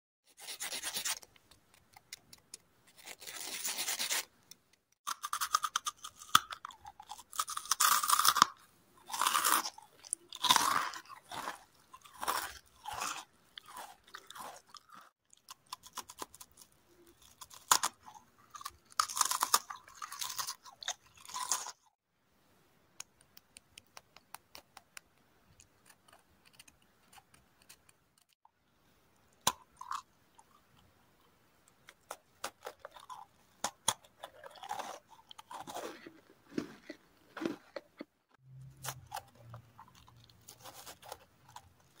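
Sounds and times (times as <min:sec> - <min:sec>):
chewing and crunching food: 0:05.1 - 0:22.0, 0:29.2 - 0:42.0.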